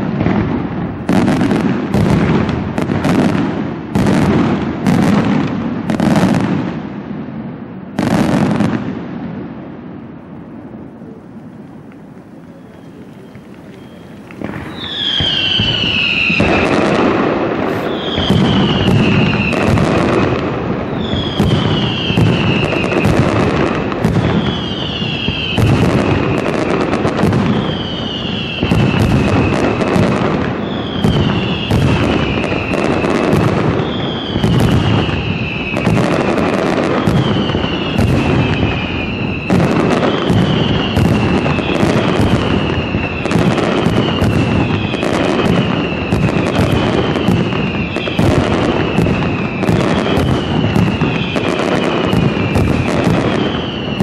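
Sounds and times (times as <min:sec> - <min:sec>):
firework shells bursting: 0:11.2 - 0:54.0
firework whistle falling in pitch: 0:12.0 - 0:54.0.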